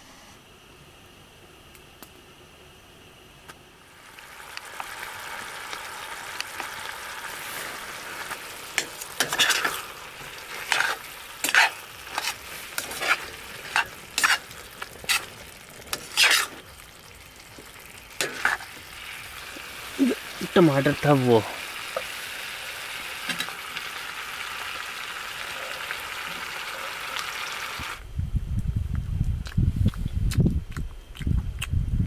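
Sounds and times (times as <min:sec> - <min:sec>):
chicken sizzling in a pan: 0:03.9 - 0:28.0
spatula scraping and stirring: 0:07.4 - 0:16.8, 0:17.5 - 0:19.7.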